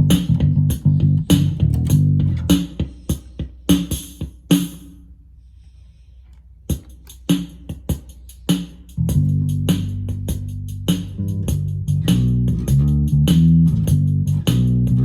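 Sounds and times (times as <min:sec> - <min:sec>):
drum machine pattern: 0:00.0 - 0:04.9, 0:06.7 - 0:15.0.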